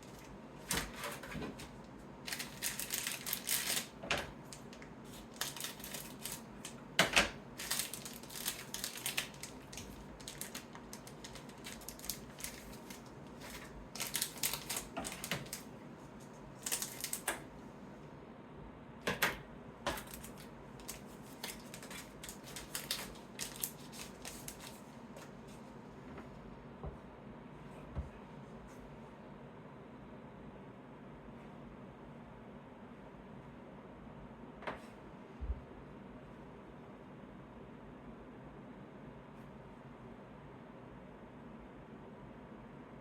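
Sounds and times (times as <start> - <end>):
cards being handled: 19.9 - 25.3.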